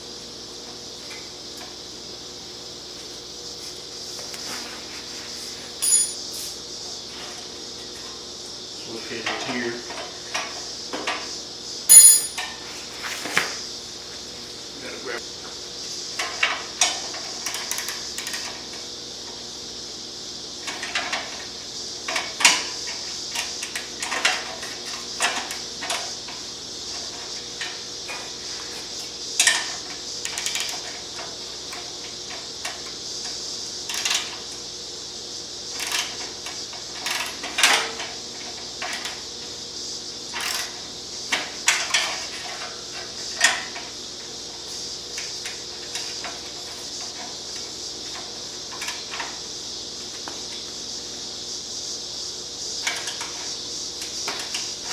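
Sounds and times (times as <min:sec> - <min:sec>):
hand tools clinking against metal: 0:05.8 - 0:06.4, 0:11.9 - 0:12.5.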